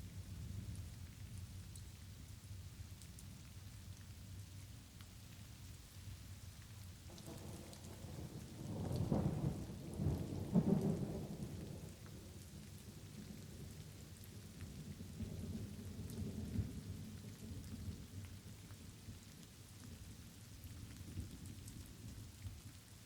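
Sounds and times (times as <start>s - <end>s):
light rain falling: 0.0s - 23.0s
rolling thunder: 7.2s - 12.0s.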